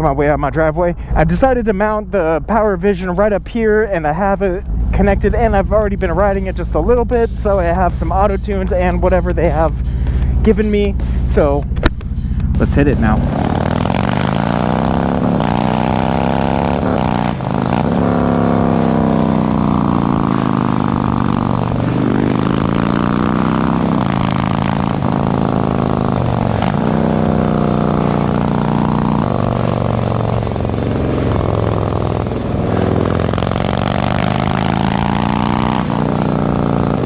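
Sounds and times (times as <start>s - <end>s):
motorcycle accelerating: 2.3s - 37.0s.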